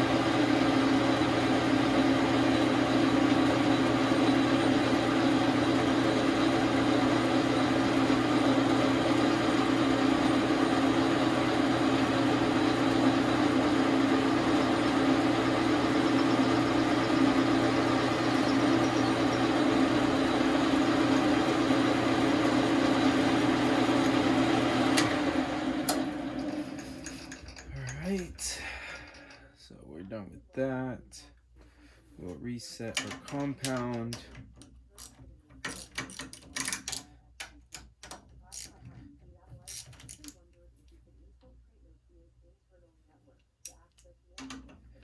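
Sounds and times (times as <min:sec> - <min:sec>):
lathe winding down: 0:00.0 - 0:28.2
lathe running: 0:00.0 - 0:28.6.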